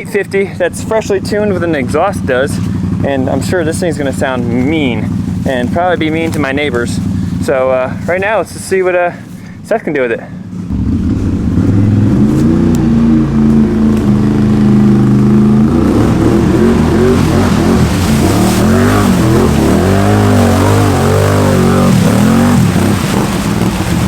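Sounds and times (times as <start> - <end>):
atv engine revving: 0.0 - 24.0.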